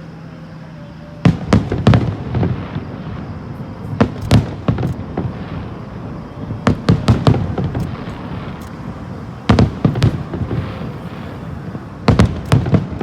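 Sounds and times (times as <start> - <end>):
fireworks bursting with bangs: 1.0 - 13.0.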